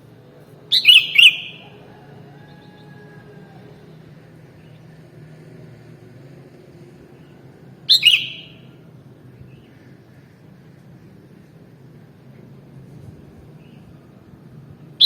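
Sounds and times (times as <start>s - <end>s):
bird double call: 0.7s - 1.8s, 7.9s - 8.7s.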